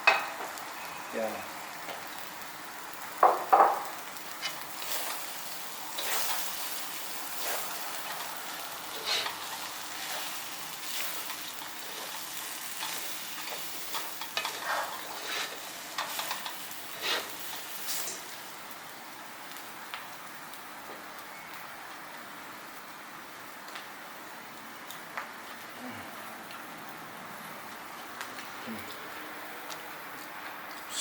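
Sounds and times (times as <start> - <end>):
noodles sizzling in a hot pan: 0.0 - 24.5.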